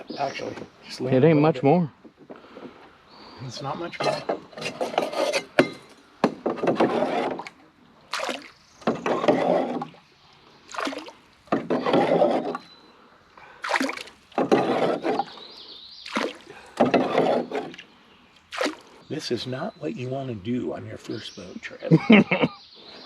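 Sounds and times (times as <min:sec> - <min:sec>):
paddle strokes in water: 0:06.6 - 0:12.8, 0:13.6 - 0:17.9.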